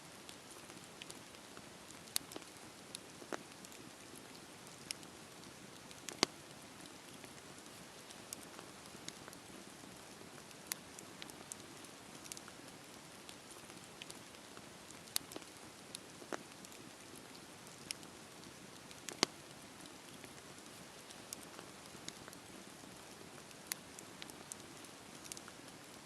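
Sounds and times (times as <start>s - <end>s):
sharp pops and snaps: 0.2s - 9.8s, 10.4s - 26.0s
wood fire crackling: 0.2s - 26.0s.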